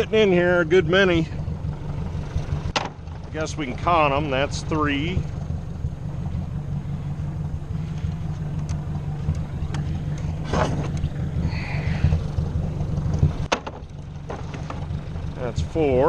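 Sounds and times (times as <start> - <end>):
tractor engine idling: 0.0 - 16.0
sharp knocks: 2.7 - 3.0, 13.1 - 14.9.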